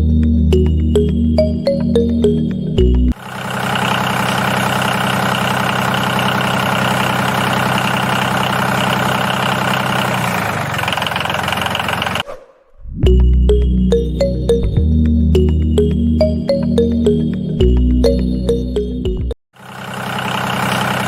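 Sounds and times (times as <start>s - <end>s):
small motor rattling: 3.2s - 12.2s, 19.6s - 21.0s.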